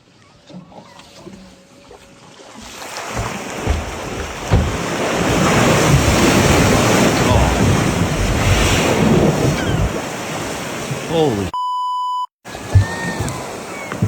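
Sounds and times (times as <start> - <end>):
sea water rushing: 1.0 - 11.5, 12.5 - 14.0
wind buffeting microphone: 3.2 - 11.0.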